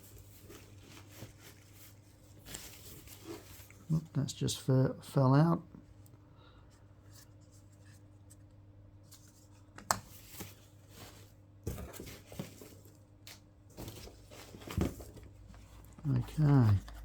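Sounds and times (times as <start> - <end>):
wrapping rustling and tearing: 0.0 - 4.0, 12.0 - 17.0.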